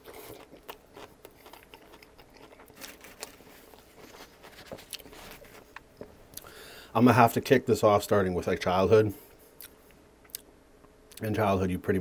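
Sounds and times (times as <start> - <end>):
chewing sandwich: 0.0 - 6.5.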